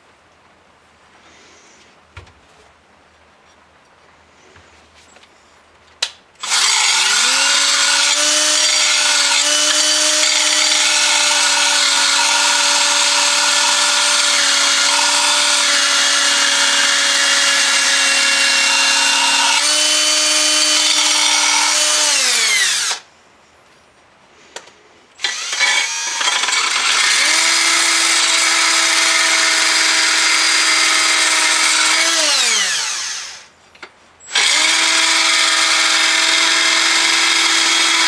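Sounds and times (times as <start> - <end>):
electric grinder grinding steel: 6.4 - 23.0, 25.2 - 33.4.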